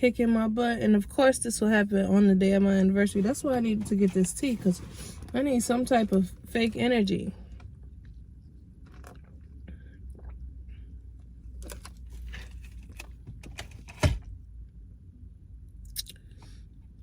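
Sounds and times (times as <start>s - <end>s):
low steady rumble: 0.0s - 17.0s
handling clicks and rustles: 11.5s - 14.3s.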